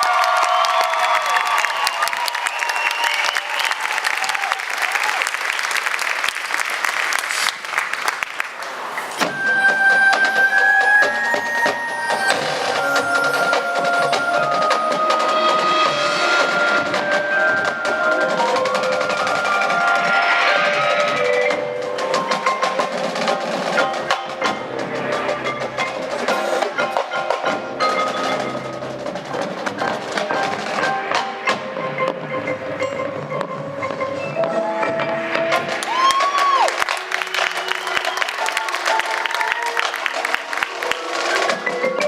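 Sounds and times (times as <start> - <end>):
marching band music: 8.7 - 42.0
mallet percussion: 9.2 - 42.0.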